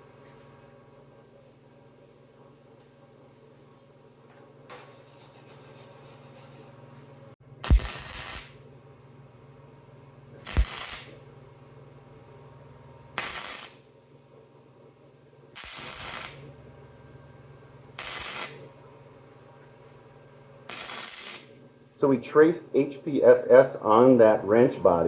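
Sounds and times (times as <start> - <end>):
steady low hum: 0.0 - 25.0
arc striking crack: 7.6 - 8.6, 10.4 - 11.2
welding arc crackling hiss: 7.6 - 8.6, 10.4 - 11.2, 13.2 - 13.9, 15.6 - 16.5, 18.0 - 18.7, 20.7 - 21.6.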